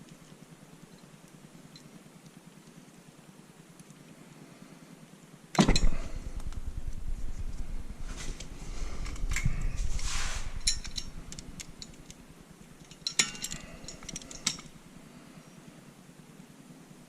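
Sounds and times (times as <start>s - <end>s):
metal tools clinking and scraping: 8.2s - 12.1s, 12.8s - 14.8s
sharp metallic clicks: 12.8s - 14.8s.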